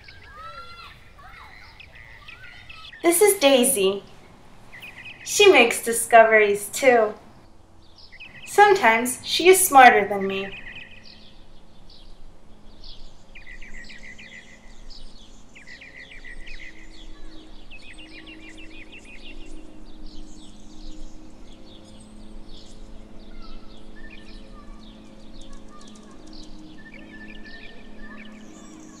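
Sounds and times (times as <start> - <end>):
songbirds chirping and trilling: 0.0 - 29.0
faint low hum: 3.0 - 7.4.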